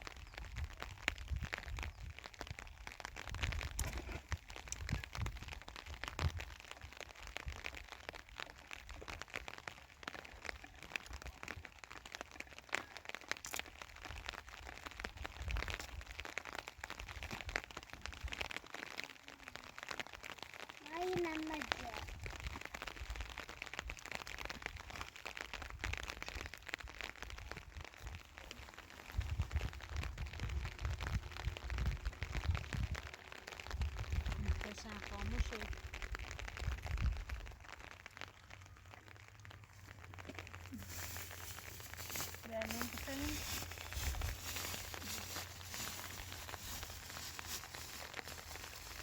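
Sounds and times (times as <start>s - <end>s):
heavy rain pattering: 0.0s - 49.0s.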